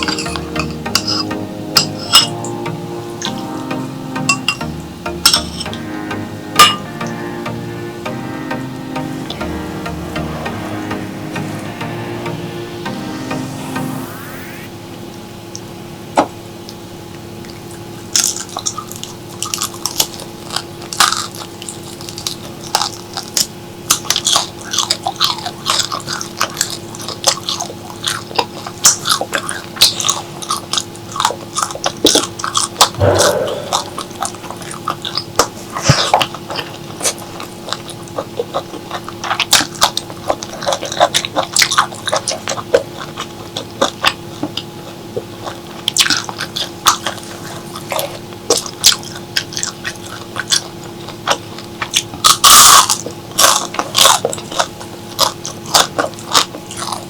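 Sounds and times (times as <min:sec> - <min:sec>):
faint steady hum: 0:00.0 - 0:15.2
wet chewing: 0:35.8 - 0:57.0.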